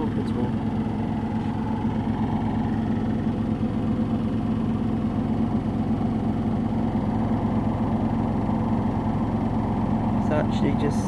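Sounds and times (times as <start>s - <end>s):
washing machine spinning: 0.0s - 11.0s.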